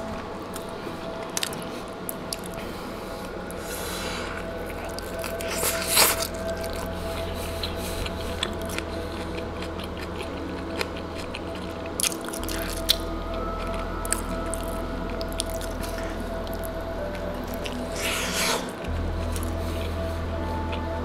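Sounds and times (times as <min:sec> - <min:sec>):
background music: 0:00.0 - 0:21.0
chewing mouth sounds: 0:04.2 - 0:20.0.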